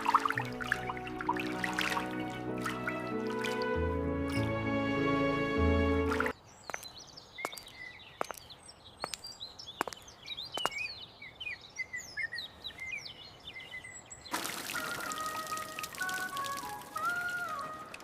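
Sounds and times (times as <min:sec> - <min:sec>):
music: 0:00.0 - 0:06.3, 0:14.7 - 0:18.0
water dripping: 0:00.0 - 0:06.8, 0:14.3 - 0:18.0
small birds chirping: 0:06.2 - 0:14.4.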